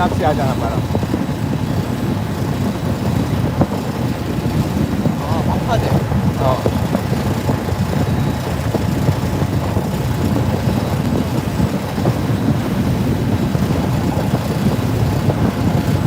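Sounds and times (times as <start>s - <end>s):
boat engine rumble: 0.0s - 16.0s.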